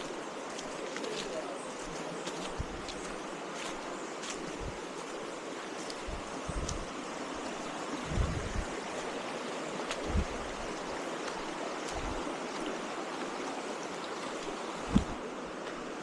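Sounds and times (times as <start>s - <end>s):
rushing stream: 0.0s - 16.0s
wind bumps on microphone: 6.0s - 6.9s, 8.0s - 8.7s, 10.0s - 10.4s, 14.9s - 15.2s.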